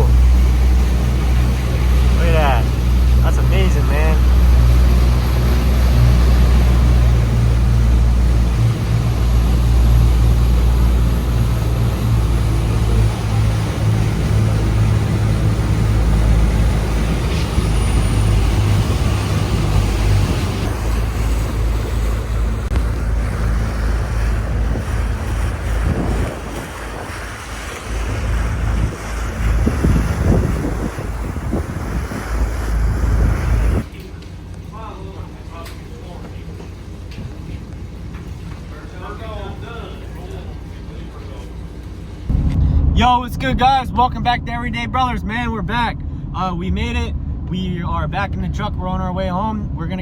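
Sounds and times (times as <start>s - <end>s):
wind buffeting microphone: 0.0s - 33.9s
water rushing: 0.0s - 47.7s
boat engine humming: 0.0s - 50.0s.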